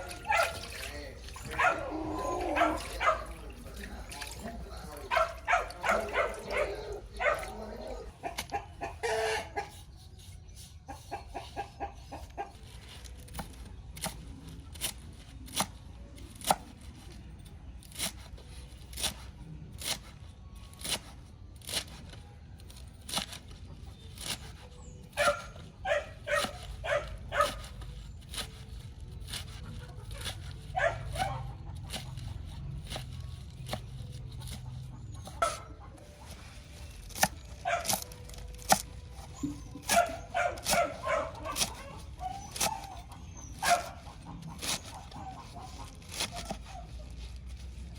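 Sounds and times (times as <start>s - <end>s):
chickens clucking: 0.0s - 9.9s, 10.8s - 12.6s, 34.3s - 46.8s.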